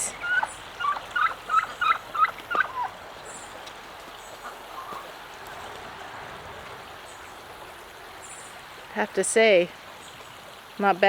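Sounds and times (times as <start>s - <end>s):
turkey short high calls: 0.2s - 2.9s.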